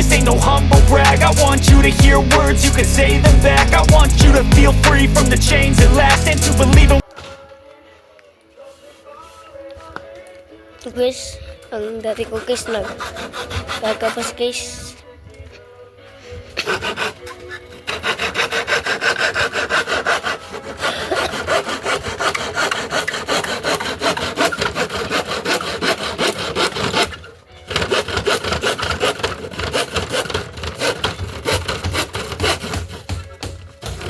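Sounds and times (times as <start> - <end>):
hand saw cutting wood: 0.0 - 7.0, 12.0 - 14.7, 16.5 - 34.0.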